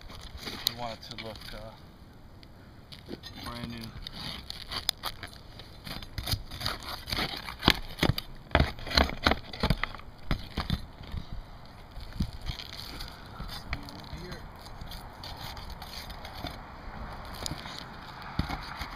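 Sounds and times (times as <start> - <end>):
roof shingle being torn off: 4.0 - 11.2.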